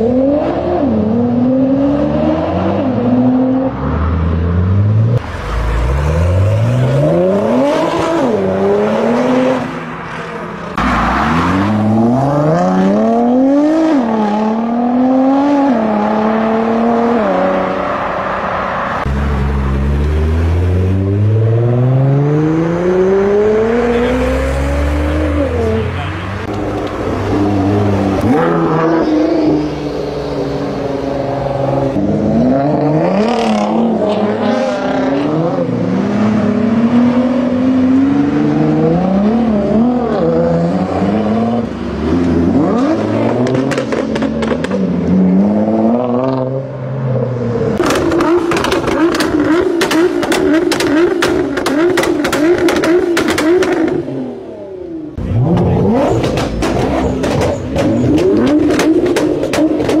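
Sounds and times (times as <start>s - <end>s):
car engine accelerating hard: 47.8s - 60.0s.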